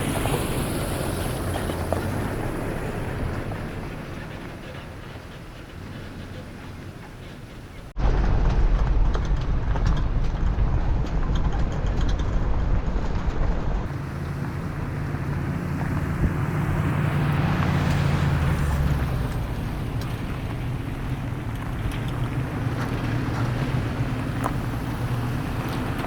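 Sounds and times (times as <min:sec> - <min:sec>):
vehicle engine running: 0:00.0 - 0:26.0
wind rushing over microphone: 0:08.0 - 0:26.0.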